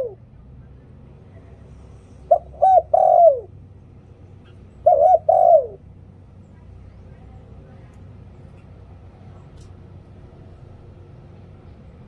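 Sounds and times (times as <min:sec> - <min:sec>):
dove cooing: 0:00.0 - 0:00.2, 0:02.3 - 0:03.6, 0:04.4 - 0:05.9.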